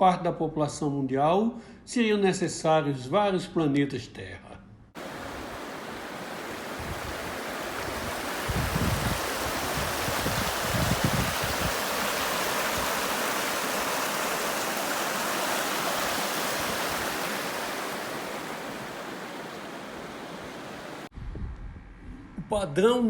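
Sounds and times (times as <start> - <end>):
rushing water: 5.0 - 21.1
low rumbles: 21.1 - 22.8.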